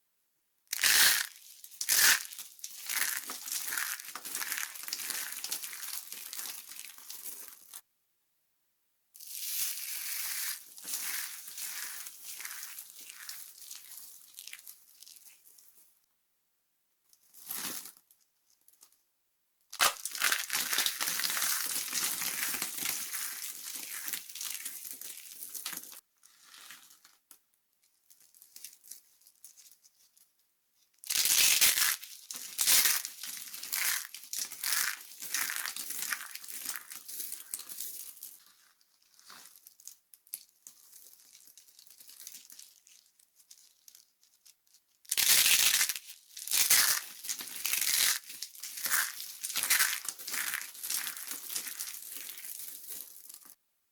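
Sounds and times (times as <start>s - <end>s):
bar soap crumbly crackling: 0.8s - 7.8s, 9.2s - 15.7s, 19.8s - 27.2s, 31.1s - 53.6s.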